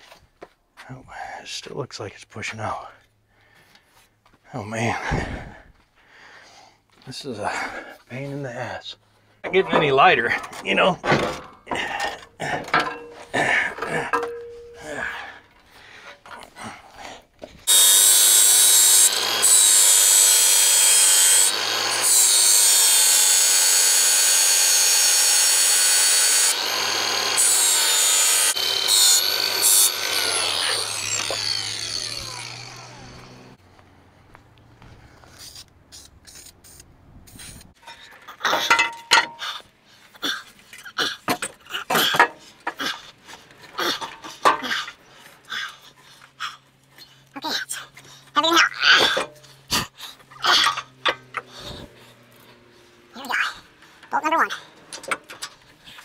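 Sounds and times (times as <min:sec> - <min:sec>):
metal clanks and knocks: 0:09.6 - 0:14.8, 0:37.9 - 0:39.5
angle grinder grinding metal: 0:11.7 - 0:15.3, 0:17.7 - 0:33.6, 0:47.9 - 0:56.0.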